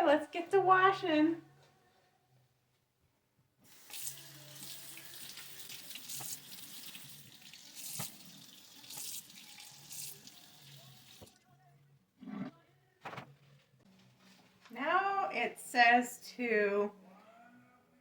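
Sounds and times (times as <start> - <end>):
kitchen tap running: 3.7 - 11.4.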